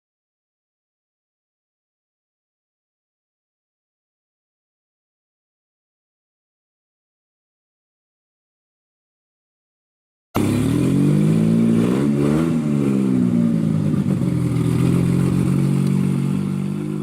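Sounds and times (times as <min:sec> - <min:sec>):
engine starting and idling: 0:10.4 - 0:11.2.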